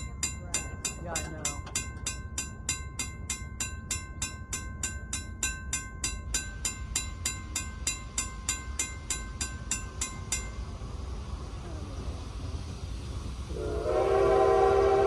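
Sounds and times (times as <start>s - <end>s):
railroad crossing bell ringing: 0.0s - 10.9s
low rumble: 9.9s - 14.3s.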